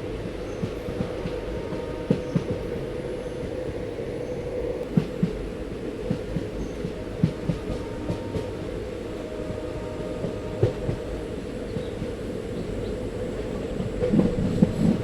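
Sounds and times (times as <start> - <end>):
train rumbling: 0.0 - 15.0
wheels clacking on track: 13.6 - 15.0.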